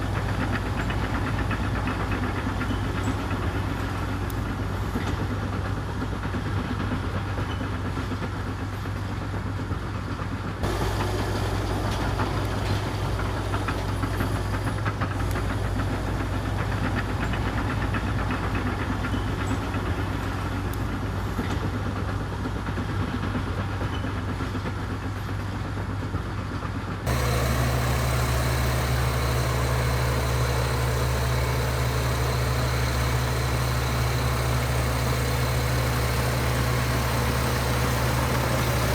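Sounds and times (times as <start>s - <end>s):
bulldozer diesel engine humming: 10.6s - 16.9s, 27.1s - 38.9s.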